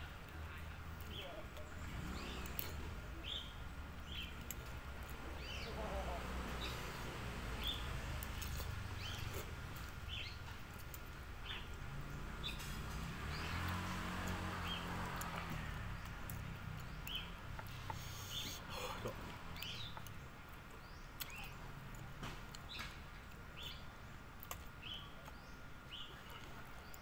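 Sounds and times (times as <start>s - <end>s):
low outdoor rumble: 0.0s - 27.0s
vehicle passing: 0.6s - 10.6s, 11.4s - 20.1s
bird chirping: 1.0s - 27.0s.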